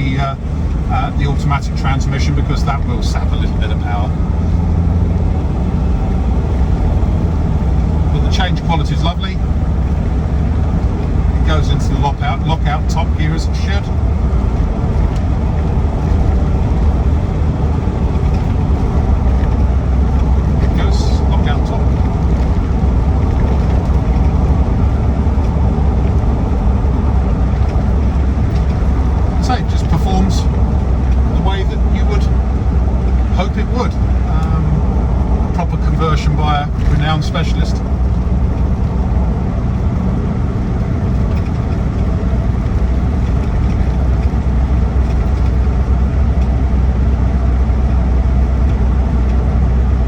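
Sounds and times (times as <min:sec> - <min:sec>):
diesel engine droning: 0:00.0 - 0:50.0
road noise: 0:00.0 - 0:50.0.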